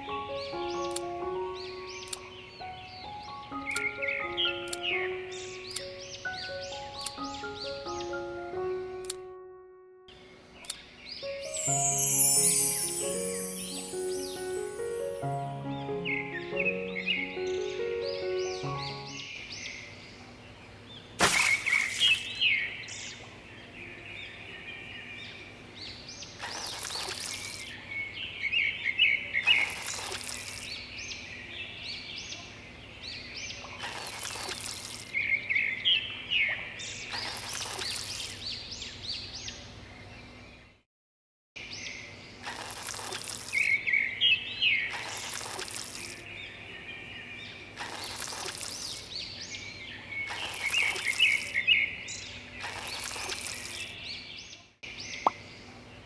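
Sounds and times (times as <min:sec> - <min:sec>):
birds chirping: 0:00.0 - 0:09.2, 0:10.2 - 0:40.4, 0:43.5 - 0:56.0
water splashing onto sand: 0:21.2 - 0:22.2, 0:44.9 - 0:46.2.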